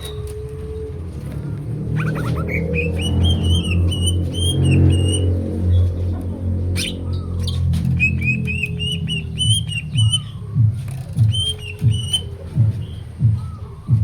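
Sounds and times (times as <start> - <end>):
steady low hum: 0.0 - 14.0
bird singing whistled notes: 1.9 - 5.4, 6.8 - 14.0.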